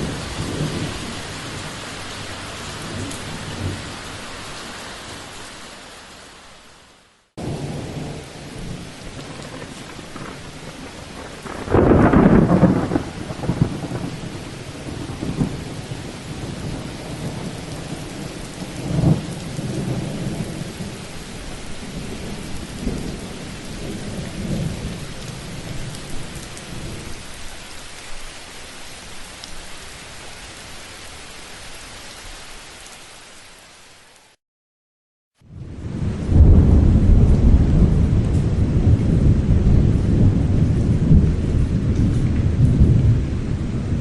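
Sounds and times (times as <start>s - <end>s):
loud thunderclap: 0.0s - 1.6s, 7.4s - 20.8s, 35.7s - 44.0s
rolling thunder rumbles: 0.0s - 4.1s, 7.4s - 27.1s, 35.5s - 44.0s
steady rain: 0.0s - 34.4s, 35.4s - 44.0s.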